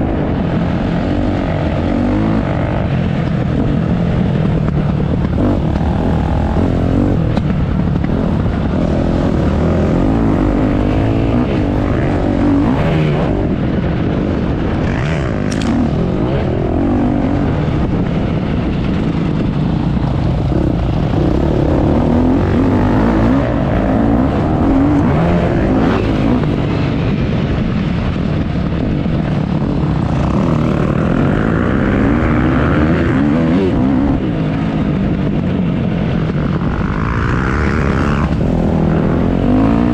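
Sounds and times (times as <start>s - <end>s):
low rumble: 0.0s - 39.9s
motocross engine revving: 4.5s - 18.1s, 20.1s - 26.9s, 30.0s - 34.2s, 36.6s - 39.9s.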